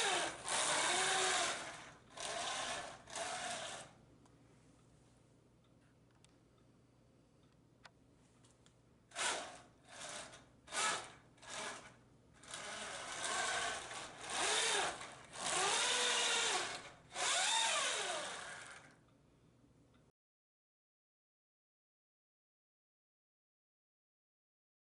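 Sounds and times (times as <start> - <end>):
toy tank motors and tracks whirring: 0.0 - 3.9, 9.1 - 19.0.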